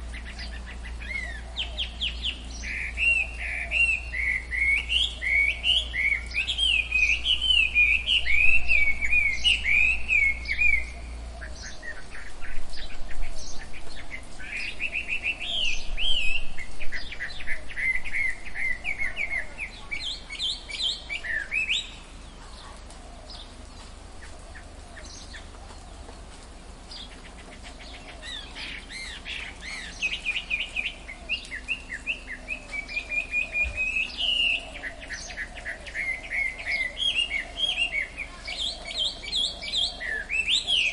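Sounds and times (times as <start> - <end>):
birds chirping and warbling: 0.0 - 40.9.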